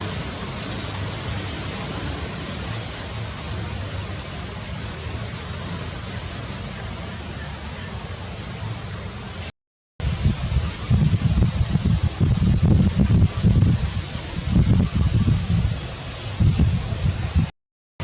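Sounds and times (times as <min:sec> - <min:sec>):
wind rumble on microphone: 0:10.0 - 0:17.5.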